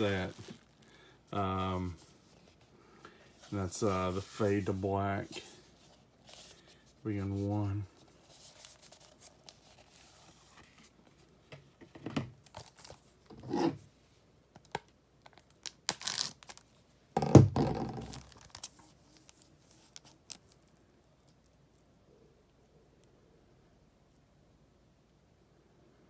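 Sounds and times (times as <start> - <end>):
papery rustle: 3.3 - 11.3.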